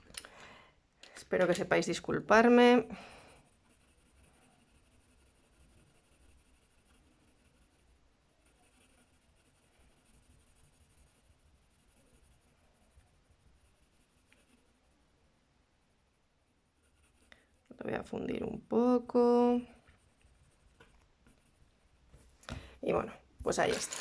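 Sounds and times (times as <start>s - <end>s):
colouring strokes scratching on paper: 2.8s - 15.0s, 16.6s - 17.8s, 19.7s - 21.6s.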